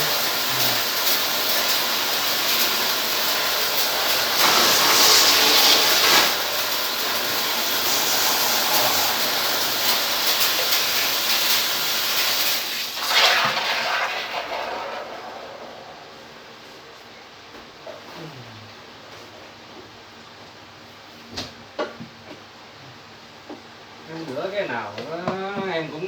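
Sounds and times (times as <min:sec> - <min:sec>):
water jet spraying hiss: 0:00.0 - 0:16.3.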